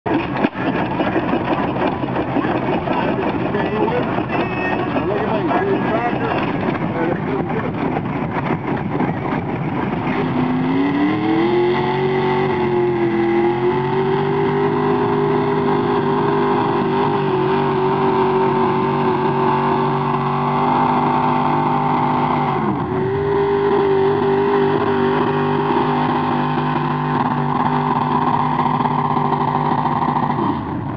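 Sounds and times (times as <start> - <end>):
tractor engine revving: 0.0 - 30.9.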